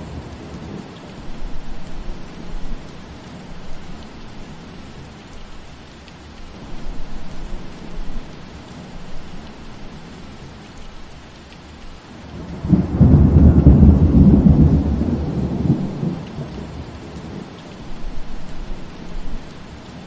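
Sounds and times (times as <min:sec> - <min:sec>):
thunder rumbling: 0:00.0 - 0:05.0, 0:12.2 - 0:20.0
steady rain: 0:00.0 - 0:20.0.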